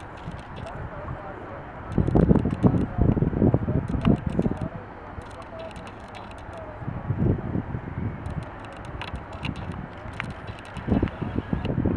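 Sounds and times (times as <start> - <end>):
wind buffeting microphone: 0.0 - 11.9
faint clicks: 1.9 - 3.2, 3.9 - 6.7, 8.2 - 11.8.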